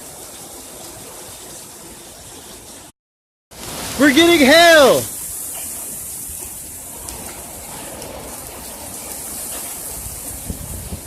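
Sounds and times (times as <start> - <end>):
heavy rain hissing: 3.5 - 11.0.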